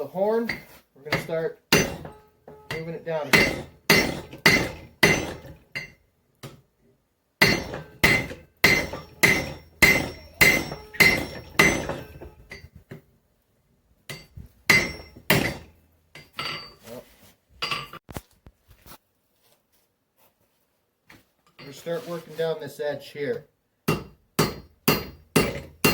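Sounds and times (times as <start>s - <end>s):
hammer ringing on hot steel: 0.5s - 6.0s, 7.4s - 12.7s, 14.1s - 16.7s, 23.9s - 25.9s.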